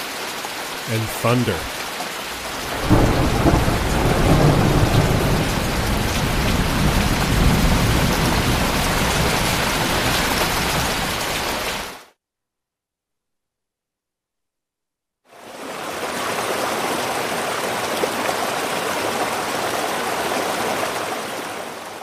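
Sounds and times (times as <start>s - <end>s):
steady rain: 0.0s - 12.0s, 15.3s - 22.0s
low thunder rumble: 2.4s - 10.0s.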